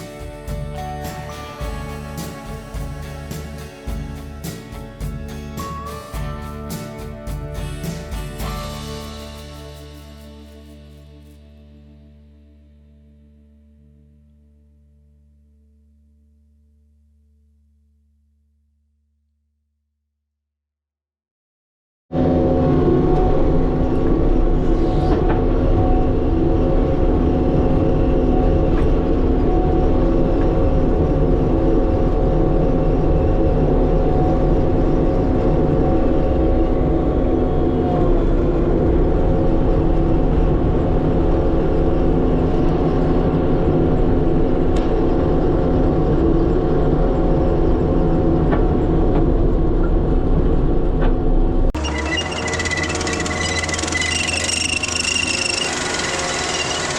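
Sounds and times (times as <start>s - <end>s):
diesel machine engine drone: 0.0s - 14.4s, 22.2s - 56.9s
steady mechanical whine: 22.2s - 56.9s.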